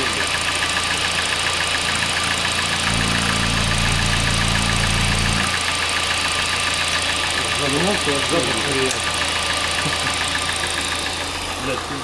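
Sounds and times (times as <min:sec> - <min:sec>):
car engine idling with ticking knock: 0:00.0 - 0:12.0
deep hum: 0:02.8 - 0:05.5.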